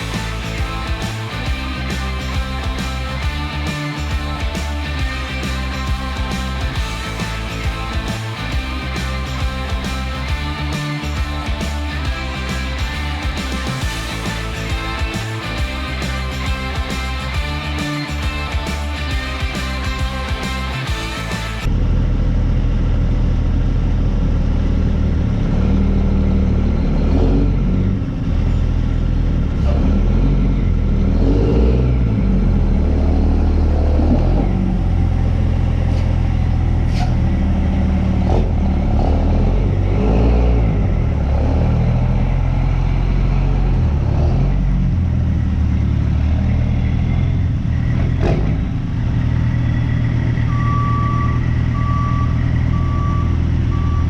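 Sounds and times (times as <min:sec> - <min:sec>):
diesel engine revving: 0:00.0 - 0:54.0
reversing alarm beeping: 0:50.3 - 0:54.0.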